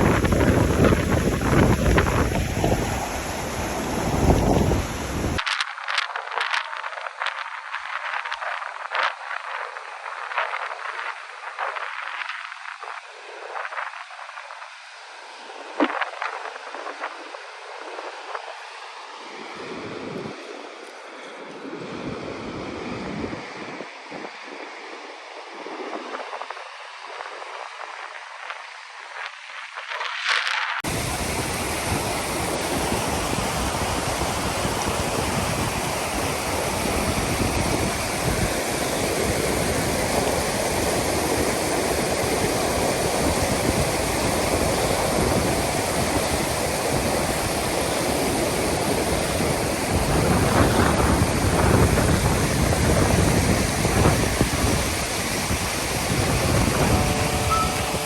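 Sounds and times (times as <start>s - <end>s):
fast-flowing water rushing: 0.0s - 5.4s, 30.8s - 58.0s.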